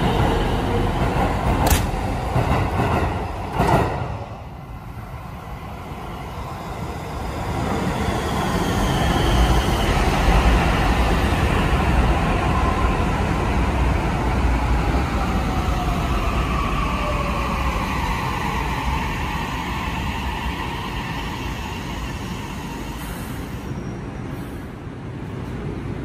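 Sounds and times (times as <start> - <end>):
train wheels rumbling on rails: 0.0 - 4.5.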